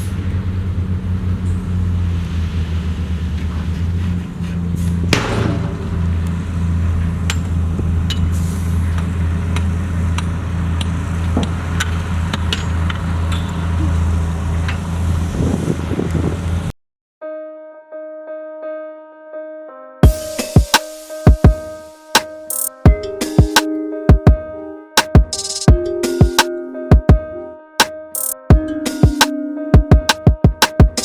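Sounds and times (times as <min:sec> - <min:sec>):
heavy diesel engine running: 0:00.0 - 0:16.7
metal clanks and knocks: 0:03.4 - 0:08.4
loud metallic bang: 0:04.8 - 0:08.8.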